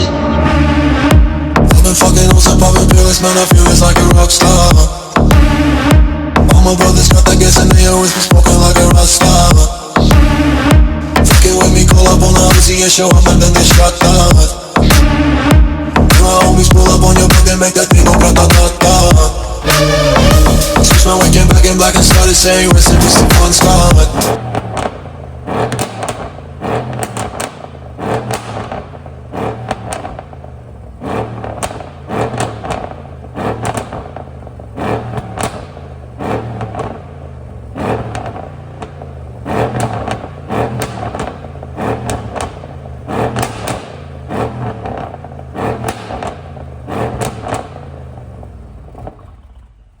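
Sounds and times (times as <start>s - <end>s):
car engine revving: 0.0s - 50.0s
exhaust pops and crackles: 20.2s - 50.0s.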